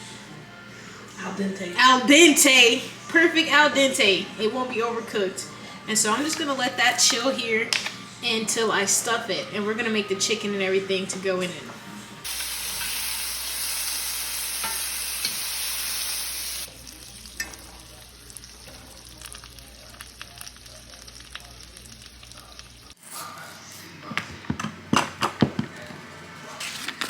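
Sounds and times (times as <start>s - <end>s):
food sizzling in a pan: 12.2s - 23.0s.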